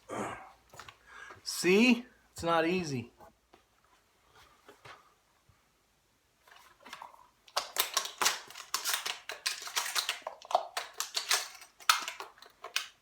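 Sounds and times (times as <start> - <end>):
shotgun shells clicking into magazine: 6.9 - 13.0.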